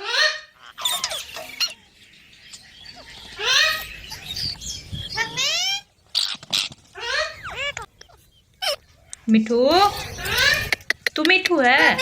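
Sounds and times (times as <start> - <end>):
parrot squawking: 0.0 - 1.9, 2.9 - 4.3, 5.1 - 9.0, 9.9 - 10.9
parrot chirping: 0.0 - 12.0.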